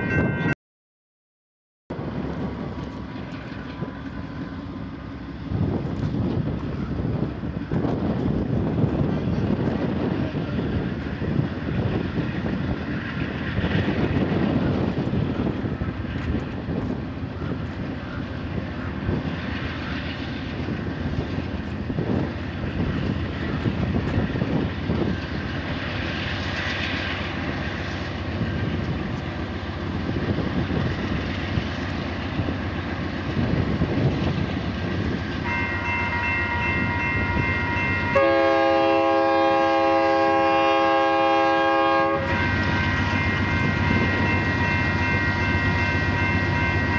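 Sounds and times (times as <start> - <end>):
diesel locomotives rumbling: 0.0 - 0.6, 1.9 - 46.9
locomotive horn: 35.4 - 46.7.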